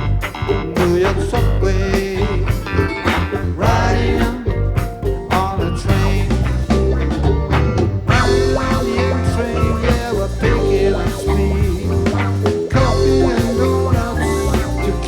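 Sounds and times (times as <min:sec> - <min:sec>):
bass guitar: 0:00.0 - 0:15.0
drums and percussion: 0:00.0 - 0:15.0
electric guitars: 0:00.0 - 0:15.0
keyboard: 0:00.0 - 0:15.0.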